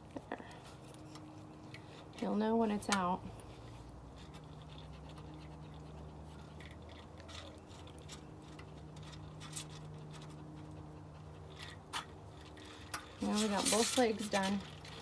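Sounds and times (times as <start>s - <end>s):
brush scratching through fur: 13.2s - 15.0s.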